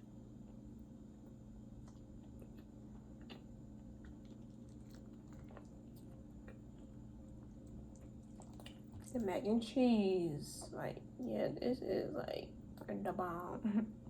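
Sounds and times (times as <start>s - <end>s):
steady low hum: 0.0s - 14.0s
person chewing food: 0.3s - 9.3s
wet mouth clicks: 1.8s - 6.8s, 7.6s - 9.2s.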